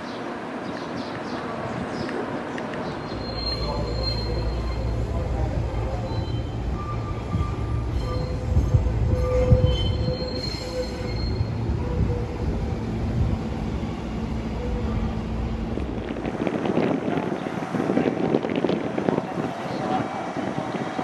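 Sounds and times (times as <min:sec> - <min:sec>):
low railway rumble: 0:00.0 - 0:21.0
faint high squealing: 0:03.0 - 0:12.3.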